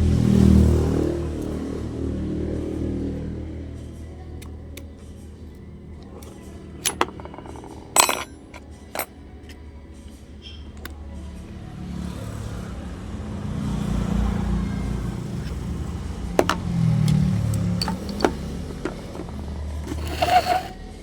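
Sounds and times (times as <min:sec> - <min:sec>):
sharp clicks and knocks: 0:06.8 - 0:09.1, 0:16.4 - 0:20.7.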